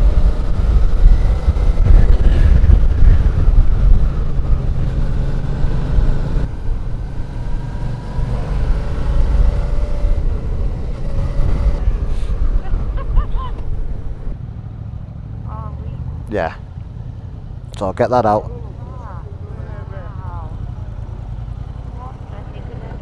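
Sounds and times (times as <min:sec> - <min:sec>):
wind rushing past helmet: 0:00.0 - 0:14.4
motorcycle engine: 0:00.0 - 0:23.0.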